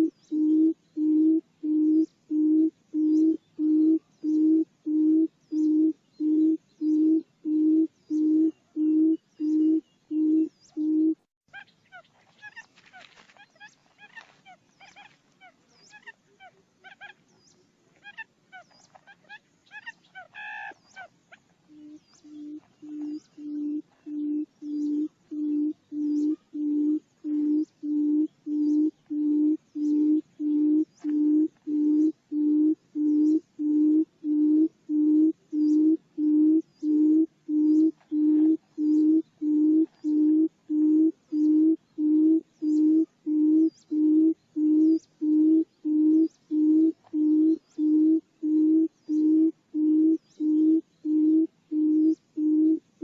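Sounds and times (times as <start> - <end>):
low hooting bird call: 0.0 - 53.0
faint high chirps: 13.6 - 52.8.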